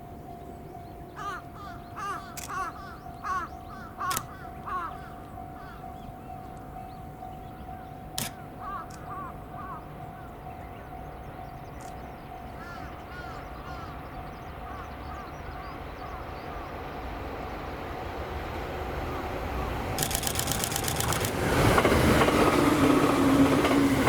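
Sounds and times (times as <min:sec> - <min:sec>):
level crossing warning bell: 0:02.7 - 0:16.3
sharp click: 0:04.1 - 0:04.3, 0:08.2 - 0:09.0, 0:20.0 - 0:21.4.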